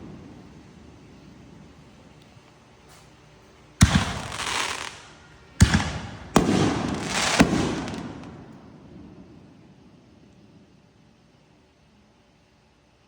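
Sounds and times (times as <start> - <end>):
fireworks bangs: 0.0 - 3.0, 3.8 - 10.0.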